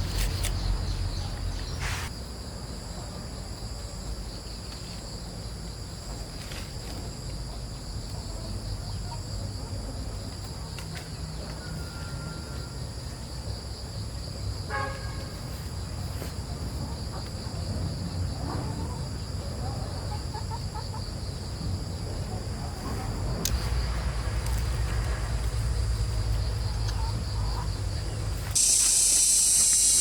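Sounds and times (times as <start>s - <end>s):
insects chirring: 0.0s - 30.0s
low rumble: 23.3s - 28.5s.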